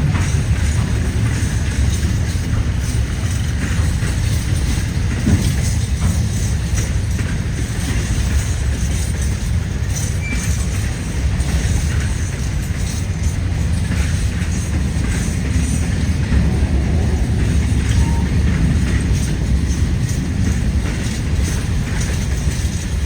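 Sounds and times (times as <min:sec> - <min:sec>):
train rumbling past: 0:00.0 - 0:23.0.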